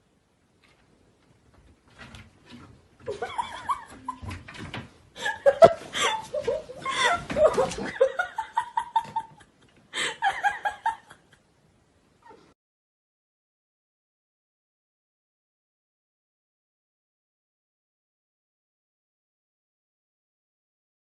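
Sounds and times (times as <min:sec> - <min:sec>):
person laughing: 0:03.1 - 0:04.4, 0:05.2 - 0:11.4.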